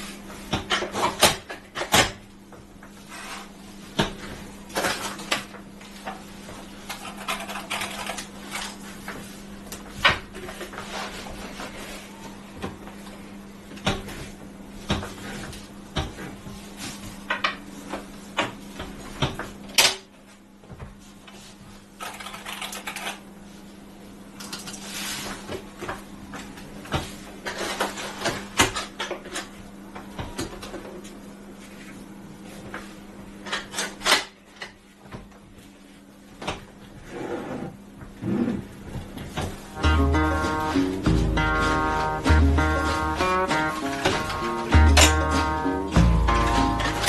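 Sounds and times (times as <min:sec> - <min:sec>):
rustling or scraping: 0:03.0 - 0:03.6, 0:10.4 - 0:12.4, 0:24.8 - 0:25.4
steady low hum: 0:37.6 - 0:47.0.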